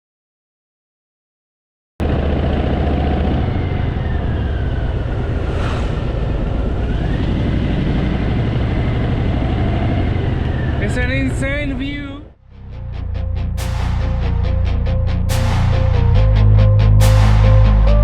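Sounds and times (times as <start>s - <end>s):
motorcycle engine rumbling: 2.0s - 12.3s.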